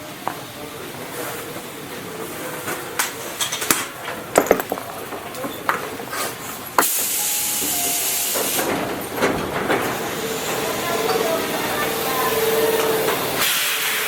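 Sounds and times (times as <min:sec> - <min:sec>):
clicks and knocks: 0:04.4 - 0:05.8
loud hiss of compressed air: 0:13.4 - 0:14.0.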